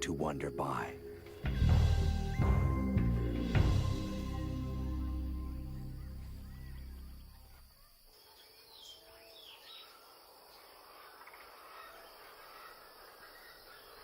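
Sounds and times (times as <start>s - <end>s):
music bed: 0.0s - 7.7s
insect noise: 0.0s - 14.0s.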